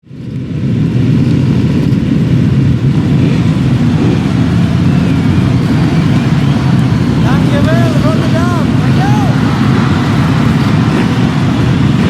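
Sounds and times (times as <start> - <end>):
motorbike engines rumbling: 0.1 - 12.0.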